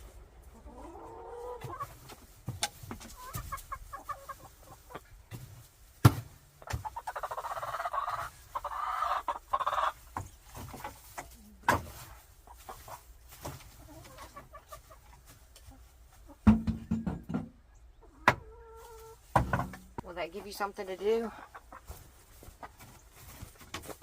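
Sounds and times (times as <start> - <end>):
chickens clucking: 0.0 - 24.0
sharp knocks: 16.4 - 17.6.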